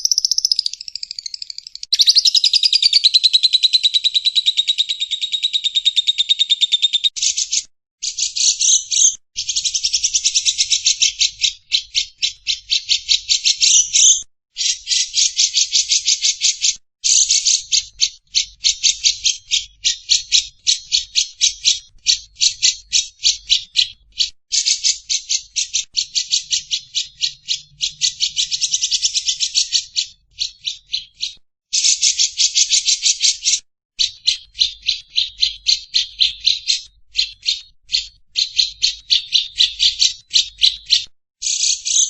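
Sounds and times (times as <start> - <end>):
songbird buzzy chattering trill: 0.0 - 16.4.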